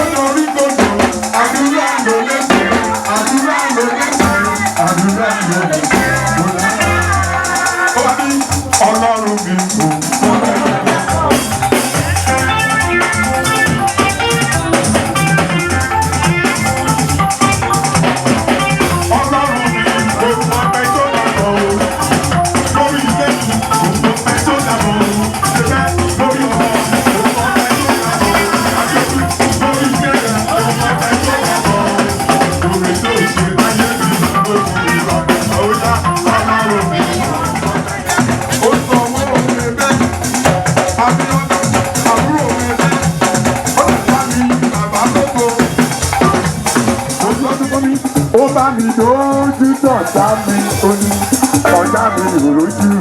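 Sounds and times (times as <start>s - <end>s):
band playing church music: 0.0s - 53.0s.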